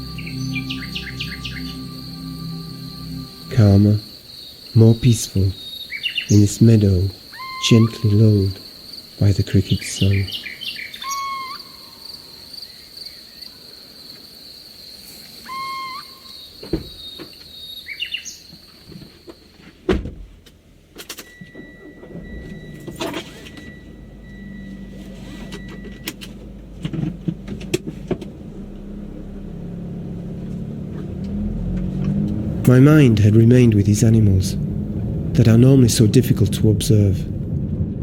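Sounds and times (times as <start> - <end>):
low rumble: 0.0 - 5.6, 31.0 - 38.0
thin whistle-like tone: 0.0 - 6.4, 7.2 - 8.6, 10.2 - 12.0, 15.4 - 17.2, 21.3 - 26.1
night animal calls: 0.0 - 19.5
crickets trilling: 0.0 - 19.6.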